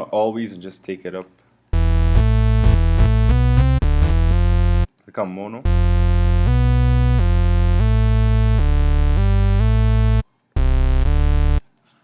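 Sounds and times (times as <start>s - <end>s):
synth bass line sliding: 1.8s - 4.9s, 5.7s - 11.6s.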